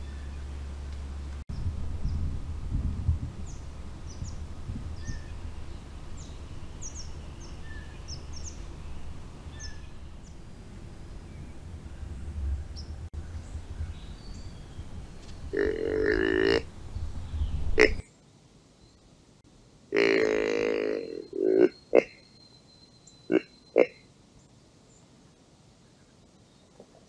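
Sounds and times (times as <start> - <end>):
low steady rumble: 0.0 - 17.8
small birds chirping: 3.4 - 19.2
low grunt-like call: 15.5 - 16.7, 17.8 - 18.0, 19.9 - 22.2, 23.3 - 24.0.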